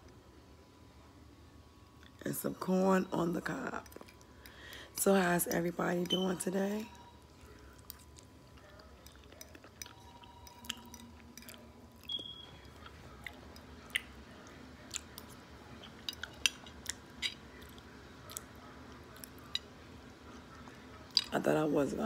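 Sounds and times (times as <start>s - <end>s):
person chewing food: 3.8s - 4.8s, 7.4s - 21.3s.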